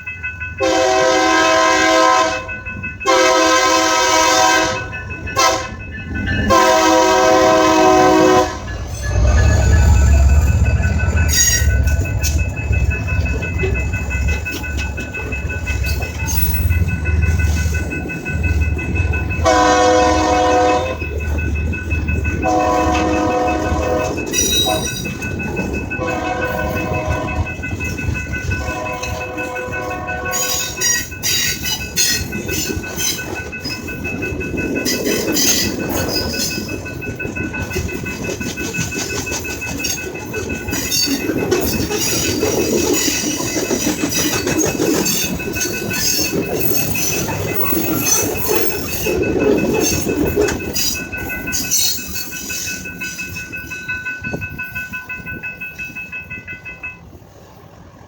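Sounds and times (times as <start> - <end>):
train wheels clattering: 0.0 - 57.6
train horn: 0.6 - 5.8, 6.5 - 9.3, 19.4 - 21.0, 22.4 - 24.9, 26.0 - 27.5, 28.6 - 30.7
high ringing tone: 4.4 - 57.0.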